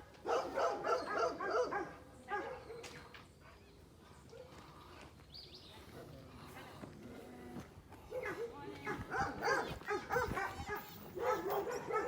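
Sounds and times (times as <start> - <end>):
dog barking: 0.2 - 2.8, 8.1 - 12.0.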